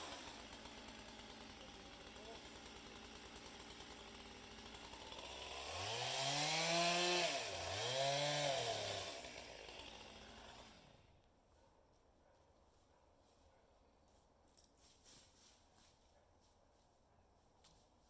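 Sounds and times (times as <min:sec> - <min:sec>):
chainsaw revving: 0:00.0 - 0:11.1.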